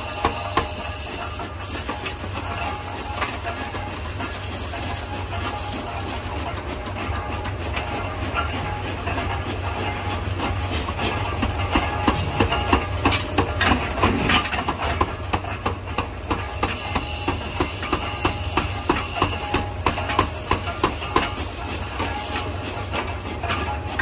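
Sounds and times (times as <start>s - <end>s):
low hum of shop machinery: 0.0s - 24.0s
forging hammer striking steel: 6.5s - 22.5s.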